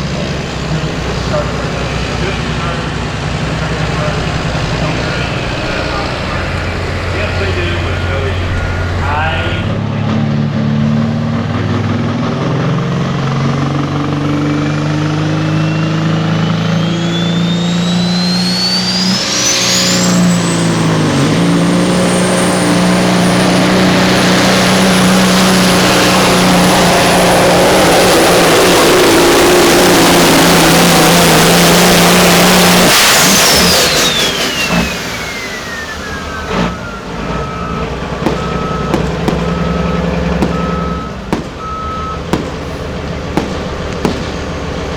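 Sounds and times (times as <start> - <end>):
diesel engine running hard: 0.0 - 44.9.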